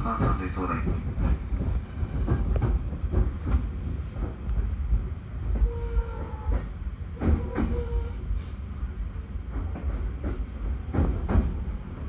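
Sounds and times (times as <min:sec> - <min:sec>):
electric train rumbling: 0:00.0 - 0:12.0
train squeals: 0:05.5 - 0:08.5.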